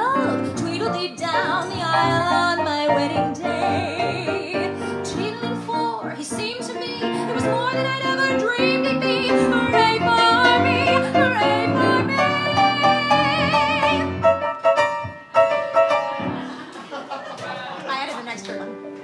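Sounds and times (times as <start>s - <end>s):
woman singing: 0.0s - 14.2s
instrumental accompaniment: 0.0s - 17.1s, 18.2s - 19.0s.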